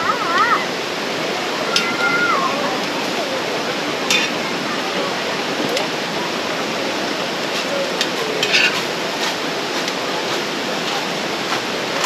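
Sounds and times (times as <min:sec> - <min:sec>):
mountain stream rushing: 0:00.0 - 0:12.0.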